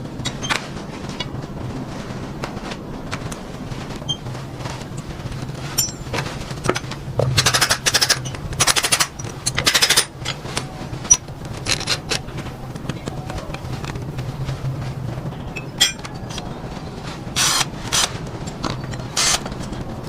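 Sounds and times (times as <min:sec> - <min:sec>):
rapid mechanical rattling: 0:00.0 - 0:20.0
steady low hum: 0:00.0 - 0:20.0.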